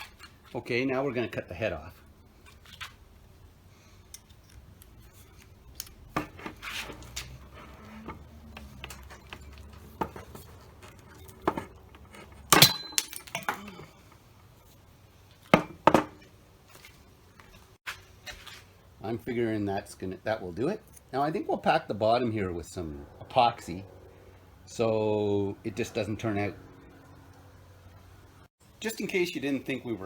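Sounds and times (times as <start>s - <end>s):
metal hand tools clinking: 9.0s - 14.1s.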